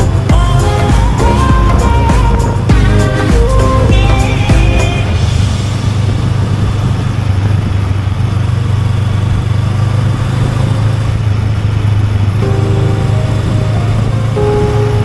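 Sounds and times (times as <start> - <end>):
background music: 0.0 - 6.1, 12.4 - 15.0
motorcycle engine running: 0.0 - 15.0.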